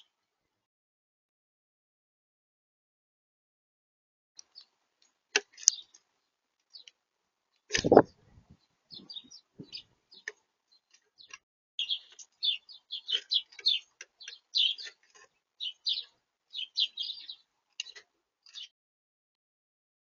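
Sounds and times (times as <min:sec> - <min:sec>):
songbirds chirping: 0:04.4 - 0:18.8.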